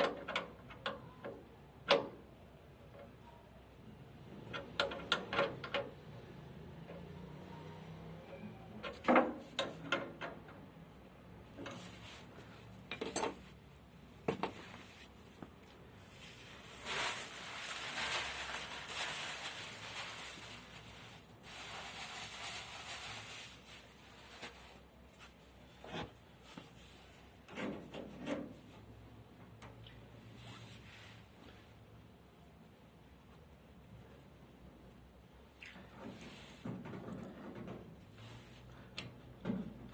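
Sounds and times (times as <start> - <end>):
metal parts and tools clinking: 12.9 - 13.5.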